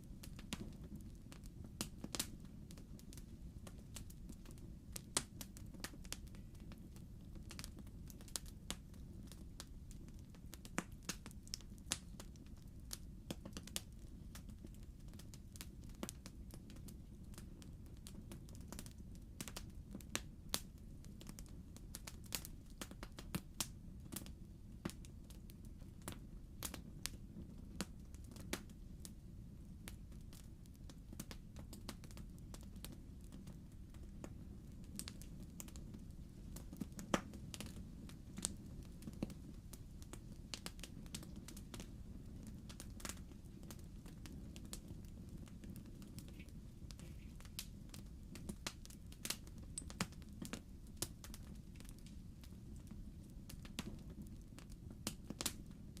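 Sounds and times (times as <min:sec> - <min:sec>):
fire crackling and popping: 0:00.0 - 0:56.0
low rumble of flames: 0:00.0 - 0:56.0.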